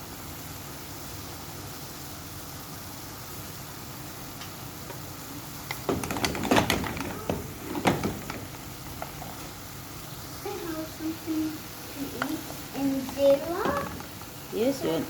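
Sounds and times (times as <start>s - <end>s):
steady background hiss: 0.0s - 15.0s
clicks and knocks: 5.7s - 9.5s, 13.1s - 14.4s.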